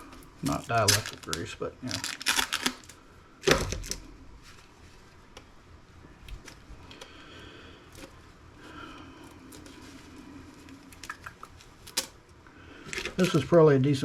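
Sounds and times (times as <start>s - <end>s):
soft rubbing of parts: 4.0s - 7.1s, 7.8s - 14.0s.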